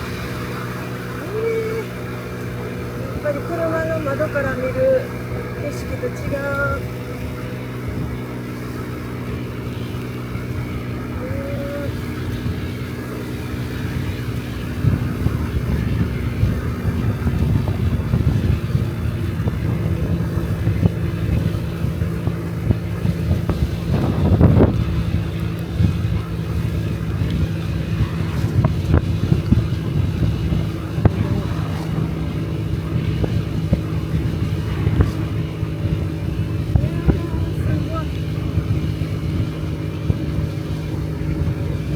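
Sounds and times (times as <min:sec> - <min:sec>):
scooter engine running: 0:00.0 - 0:41.9
wind buffeting microphone: 0:00.0 - 0:41.9.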